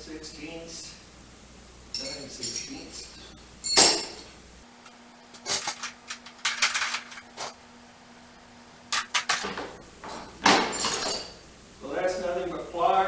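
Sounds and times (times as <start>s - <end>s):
metal hand tools clinking: 1.9s - 3.0s, 3.6s - 4.4s, 5.5s - 7.3s, 10.7s - 11.4s.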